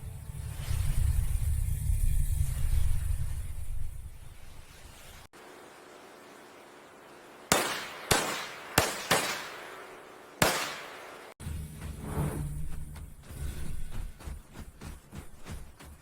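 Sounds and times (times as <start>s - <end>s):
faint steady hiss: 1.0s - 11.4s
sharp ringing bangs: 7.5s - 11.4s.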